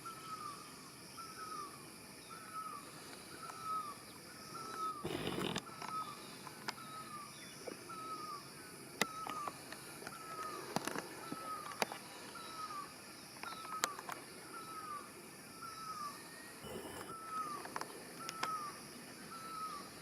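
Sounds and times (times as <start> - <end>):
background hiss: 0.0 - 20.0
sharp clicks: 5.0 - 5.6.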